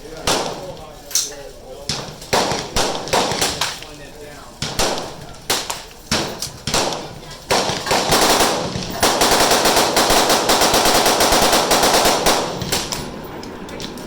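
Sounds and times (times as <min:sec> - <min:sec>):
rapid gunfire: 0:00.2 - 0:00.8, 0:01.9 - 0:03.8, 0:04.5 - 0:13.1
gunshots: 0:00.2 - 0:00.9, 0:01.9 - 0:13.2.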